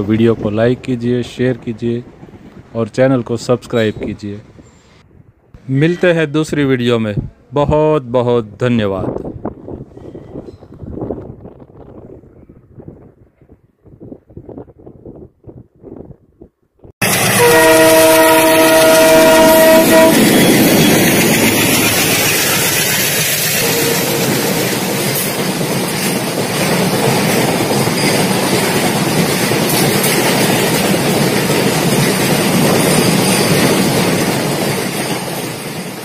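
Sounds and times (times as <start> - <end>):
train running on rails: 0.0 - 6.6, 9.0 - 16.0, 17.0 - 36.0
multi-tone train horn: 17.0 - 20.8, 23.6 - 24.8.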